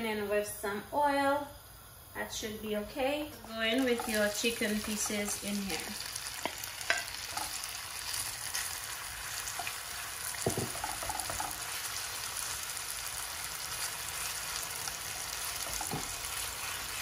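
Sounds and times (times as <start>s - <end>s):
chicken sizzling in hot oil: 0.6s - 17.0s
wooden spoon knocks: 10.4s - 11.5s.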